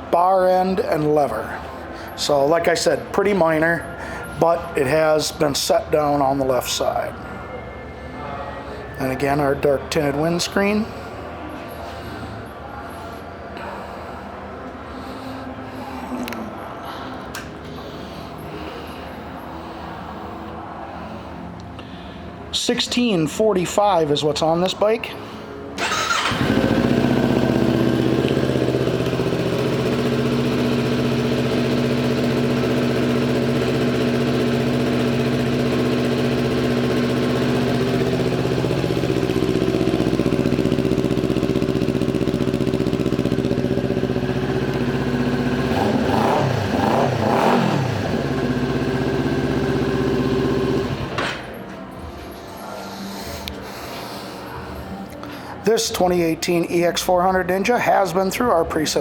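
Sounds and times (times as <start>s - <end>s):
motorcycle engine idling: 25.8s - 51.6s
motorcycle engine revving: 25.8s - 51.6s.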